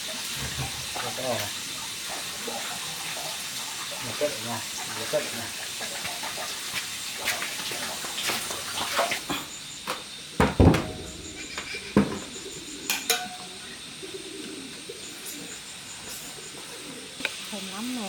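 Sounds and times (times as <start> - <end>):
short knocks and clatter: 10.4 - 12.5
splashing water: 10.7 - 12.6.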